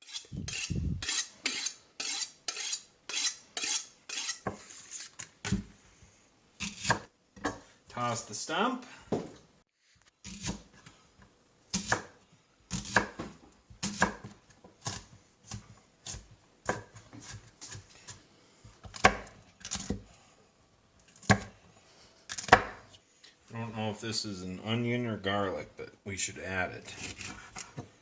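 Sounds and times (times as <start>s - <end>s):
knife chopping on cutting board: 6.6s - 7.6s, 10.3s - 10.8s, 11.7s - 18.2s, 21.2s - 21.5s, 22.3s - 22.8s.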